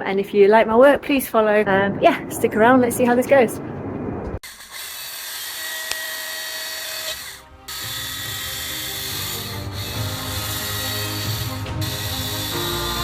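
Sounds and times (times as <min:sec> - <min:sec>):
chainsaw cutting log: 0:04.4 - 0:13.0.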